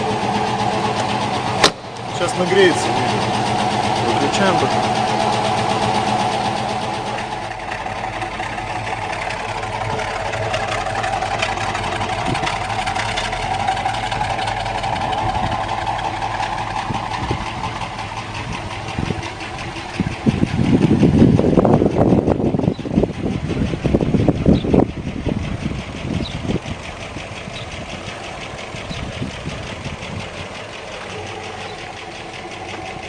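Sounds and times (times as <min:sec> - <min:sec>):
car engine idling with ticking: 0:00.0 - 0:33.0.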